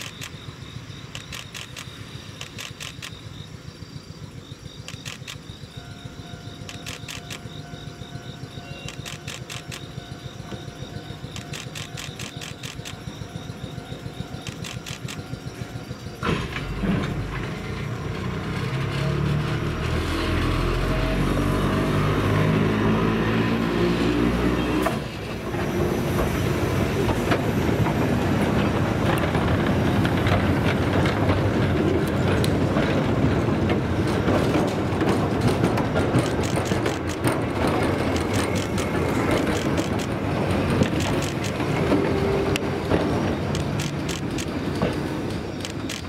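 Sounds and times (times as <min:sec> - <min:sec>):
sharp clicks: 0:00.0 - 0:00.4, 0:01.1 - 0:03.3, 0:04.8 - 0:05.6, 0:06.5 - 0:07.7, 0:08.4 - 0:15.6, 0:35.5 - 0:41.7, 0:43.4 - 0:46.0
electric train motor hum: 0:00.0 - 0:46.0
wagon wheels clattering on track: 0:03.8 - 0:21.4, 0:24.8 - 0:46.0.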